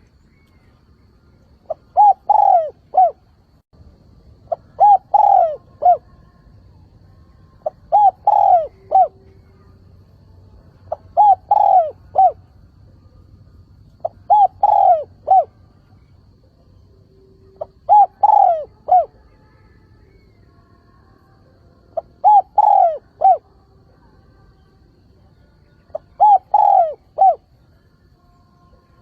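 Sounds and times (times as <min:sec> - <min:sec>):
dove cooing: 0:01.6 - 0:03.3, 0:04.4 - 0:06.2, 0:07.6 - 0:09.7, 0:10.8 - 0:12.4, 0:14.0 - 0:15.6, 0:17.4 - 0:19.3, 0:22.0 - 0:23.5, 0:25.9 - 0:27.6.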